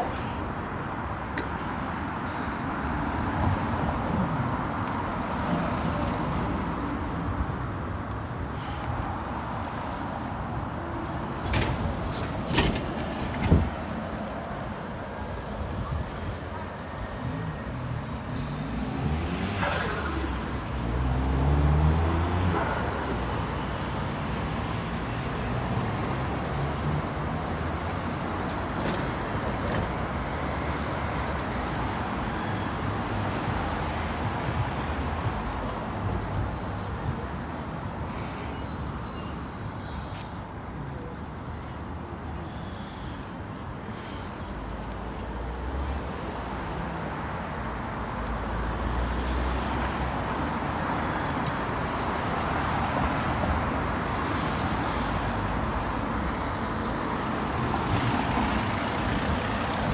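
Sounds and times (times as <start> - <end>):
vehicles passing: 0.0 - 59.9
heavy engine pulling away: 57.8 - 59.9.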